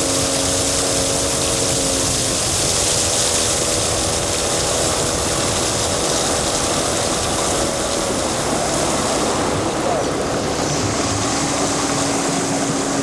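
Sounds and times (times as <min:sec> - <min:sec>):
motorboat engine running: 0:00.0 - 0:13.0
wide even hiss: 0:00.0 - 0:13.0.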